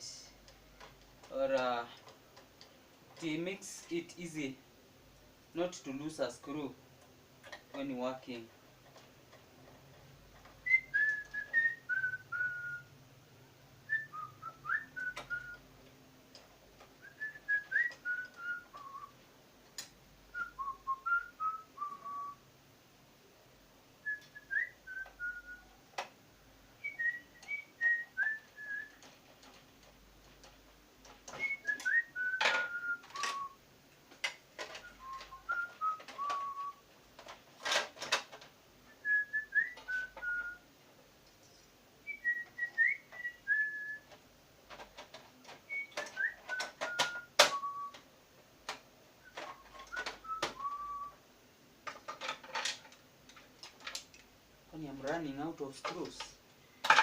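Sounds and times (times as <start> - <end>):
person whistling a tune: 10.6 - 12.9, 13.9 - 15.6, 17.0 - 19.1, 20.3 - 22.4, 24.0 - 25.8, 26.8 - 29.0, 31.3 - 33.6, 34.8 - 36.8, 38.9 - 40.6, 42.1 - 44.1, 45.7 - 48.0, 49.2 - 51.2.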